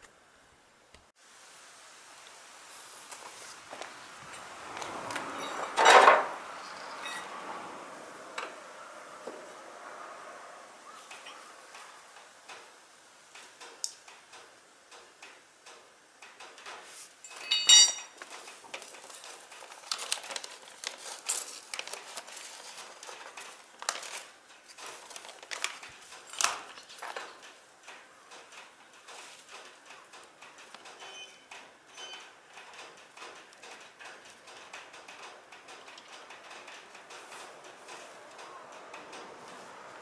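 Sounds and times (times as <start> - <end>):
metal parts clinking: 17.2 - 18.2.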